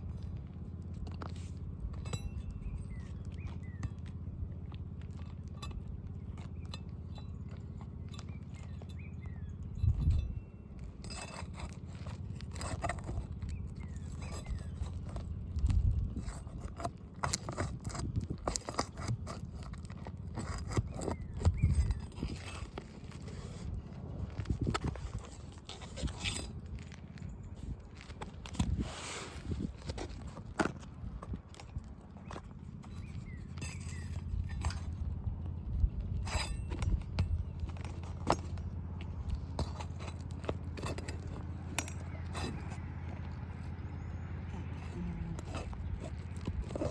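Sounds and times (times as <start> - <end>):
steady low hum: 0.0 - 46.9
tools scraping on roof shingles: 0.1 - 46.9
low rumble: 19.2 - 46.9.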